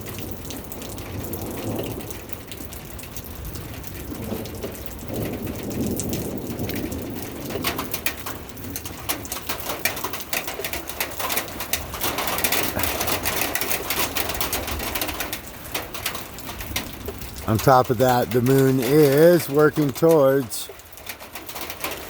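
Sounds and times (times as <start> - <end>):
rain falling: 0.0 - 22.0
sharp drip clicks: 7.5 - 22.0.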